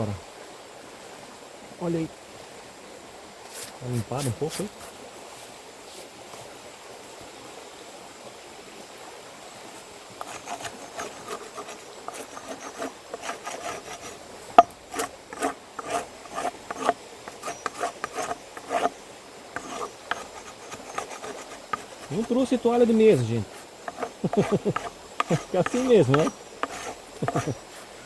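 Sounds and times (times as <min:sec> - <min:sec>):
scraping strokes on wooden board: 0:10.2 - 0:19.0, 0:19.6 - 0:28.0.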